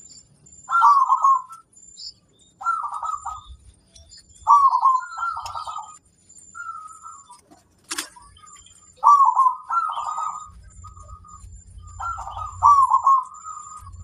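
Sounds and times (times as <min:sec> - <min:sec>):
dove cooing: 0:00.7 - 0:01.6, 0:02.6 - 0:03.6, 0:04.4 - 0:06.0, 0:09.0 - 0:14.0.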